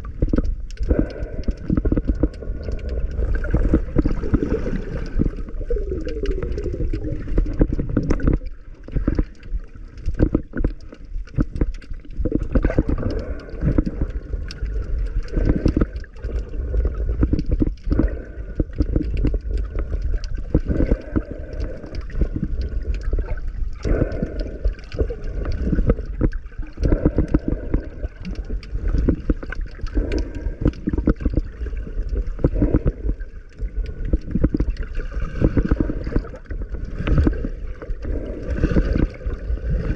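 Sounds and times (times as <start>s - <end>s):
muffled underwater gurgling: 0.0s - 39.9s
small knocks and clicks: 7.3s - 32.6s.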